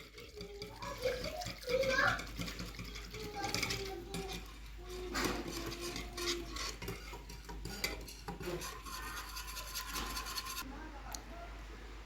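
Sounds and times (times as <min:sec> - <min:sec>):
spoon clinking and scraping vessel: 0:00.0 - 0:10.6.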